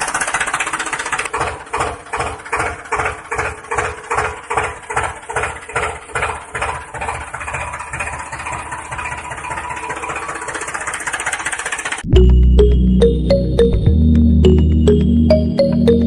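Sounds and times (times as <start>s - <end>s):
model tractor motor chugging: 0.0s - 12.1s
music: 12.1s - 16.0s.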